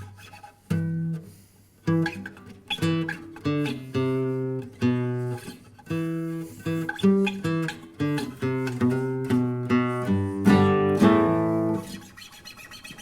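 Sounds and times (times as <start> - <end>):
guitar string squeaks: 6.5 - 13.0
guitar single-note riff: 7.4 - 12.0.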